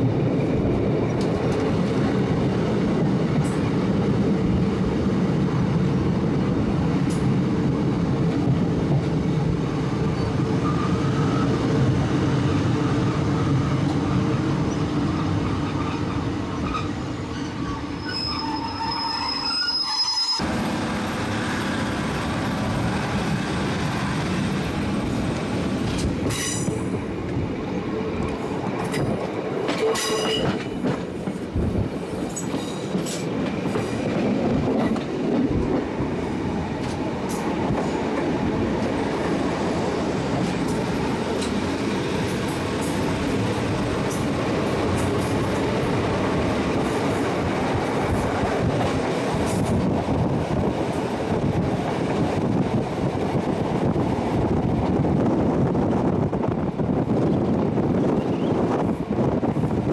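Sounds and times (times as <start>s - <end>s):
train wheel and rail noise: 0.0s - 59.9s
high wheel squeal: 15.2s - 20.4s.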